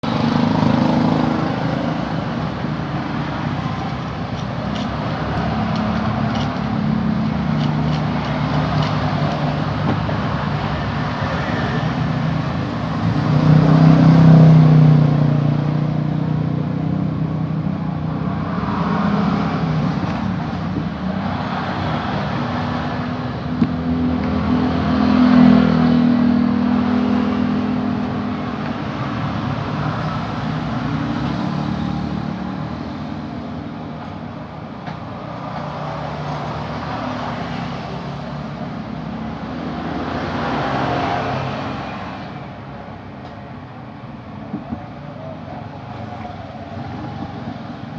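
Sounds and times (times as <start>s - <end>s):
vehicle engines droning: 0.0s - 47.9s.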